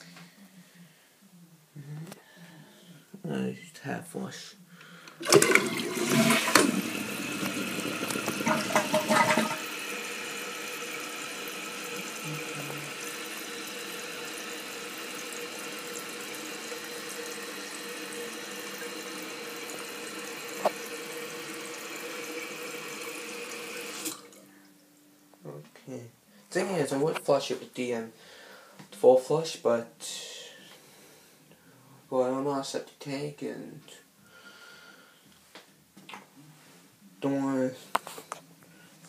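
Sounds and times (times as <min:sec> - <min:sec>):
toilet flushing: 0:05.2 - 0:24.4
toilet tank refilling hiss: 0:05.2 - 0:24.4.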